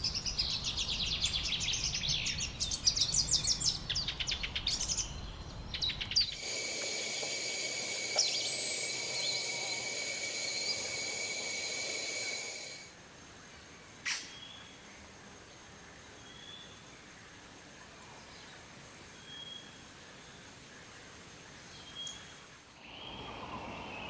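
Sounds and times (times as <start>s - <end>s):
bird chirps: 0.0s - 12.8s
descending bird call: 5.8s - 12.9s
thin high tone: 6.4s - 12.9s.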